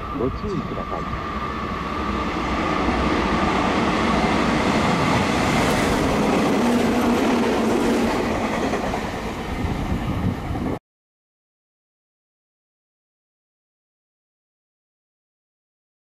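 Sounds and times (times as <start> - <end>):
train low hum: 0.0 - 10.8
train wheels rushing on rail: 0.0 - 10.8.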